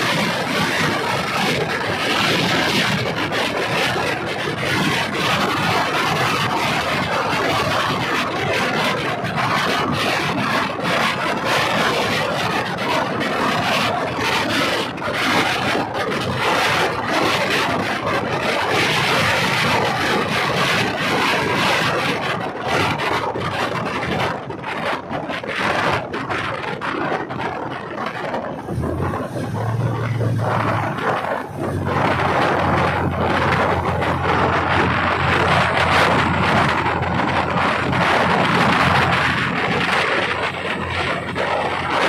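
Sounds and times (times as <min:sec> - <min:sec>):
rushing noise: 0:00.0 - 0:42.0
train wheels rattling on rails: 0:24.6 - 0:42.0.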